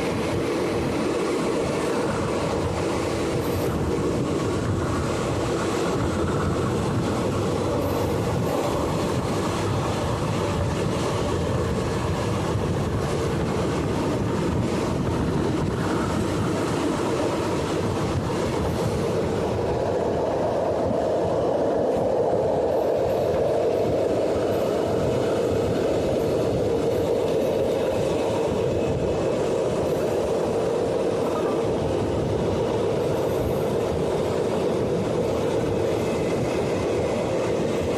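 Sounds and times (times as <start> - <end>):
train wheels rumbling on rail: 0.0 - 37.9.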